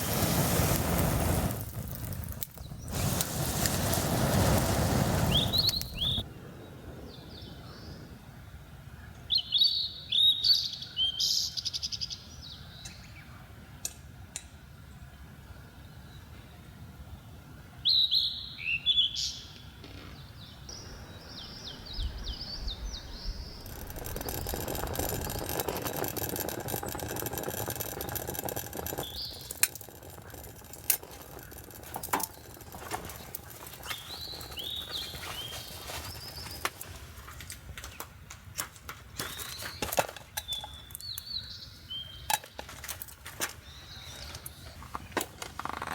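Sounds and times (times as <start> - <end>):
sharp cracks: 0.0 - 6.2, 20.7 - 41.2
birds chirping: 0.0 - 6.3, 19.0 - 37.2
steady rushing noise: 20.8 - 36.8.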